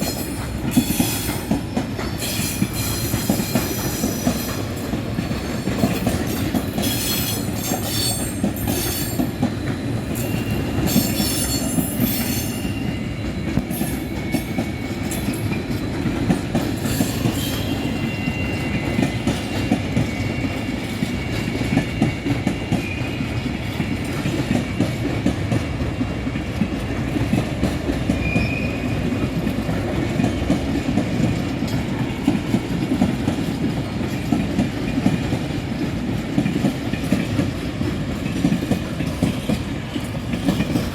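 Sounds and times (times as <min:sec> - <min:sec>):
train wheels clattering on rails: 0:00.0 - 0:40.9
faint high squeal: 0:17.1 - 0:23.2.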